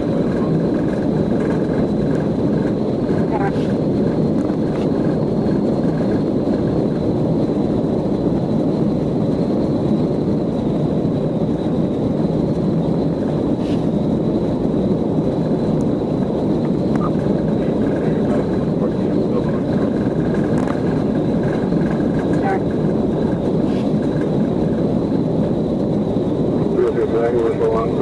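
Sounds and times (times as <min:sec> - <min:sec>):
vehicle rumble: 0:00.0 - 0:28.0.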